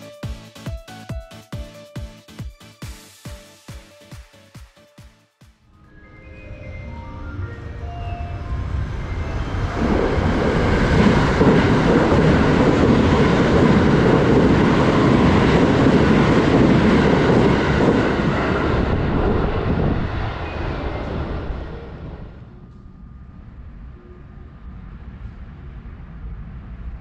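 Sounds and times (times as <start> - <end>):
train rumbling on rails: 6.3 - 27.0.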